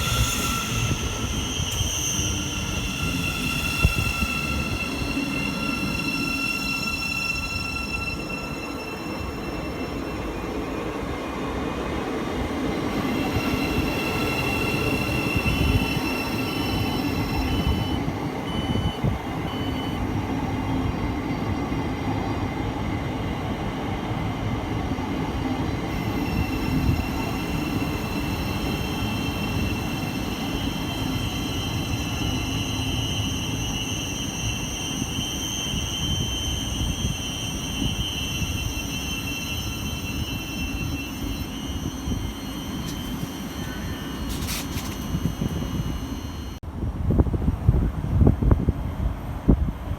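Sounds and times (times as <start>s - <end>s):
high whining tones: 0.0s - 20.8s, 25.8s - 46.6s
train wheels rumbling on track: 0.0s - 49.9s.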